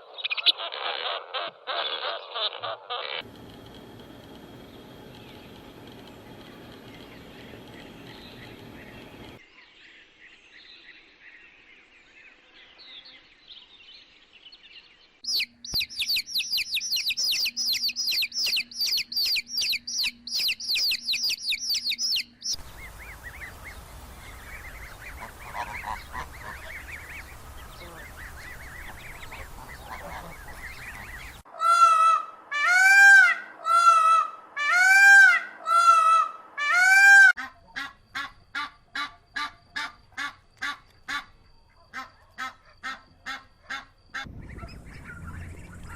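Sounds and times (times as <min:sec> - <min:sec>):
loud honking bird calls: 0:01.4 - 0:09.4, 0:22.6 - 0:41.3
faint bird chirping: 0:03.2 - 0:31.5, 0:44.0 - 0:45.9
high bird trill: 0:03.4 - 0:09.4, 0:15.3 - 0:32.0.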